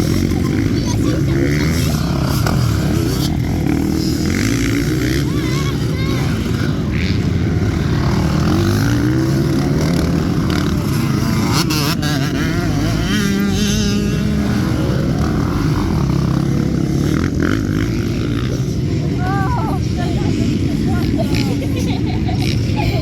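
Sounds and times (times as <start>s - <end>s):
motocross bike engine revving: 0.0s - 23.0s.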